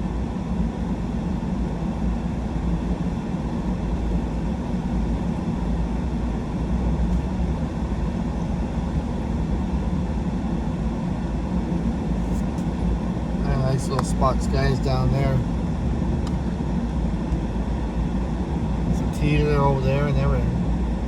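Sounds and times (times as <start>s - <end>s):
truck engine and tyre rumble: 0.0s - 21.0s.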